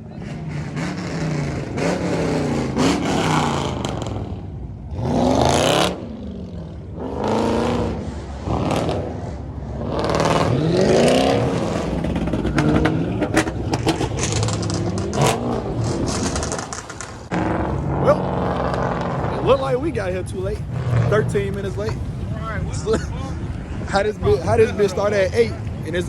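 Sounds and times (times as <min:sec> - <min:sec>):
car engines revving: 0:00.0 - 0:26.0
sharp cracks: 0:13.4 - 0:17.5.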